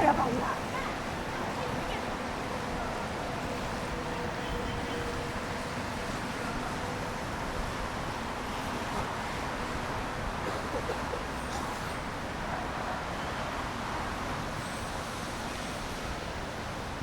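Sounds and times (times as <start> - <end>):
vehicles passing on wet roads: 0.0 - 17.0.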